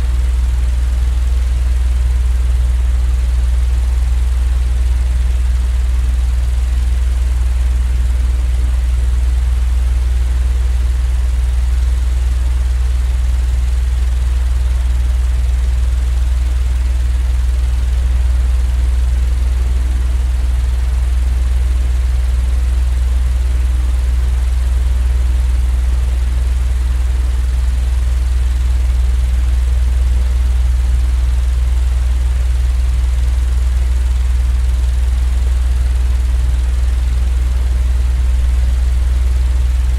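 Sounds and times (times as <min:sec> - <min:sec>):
machine drone low hum: 0:00.0 - 0:11.3, 0:25.8 - 0:39.9.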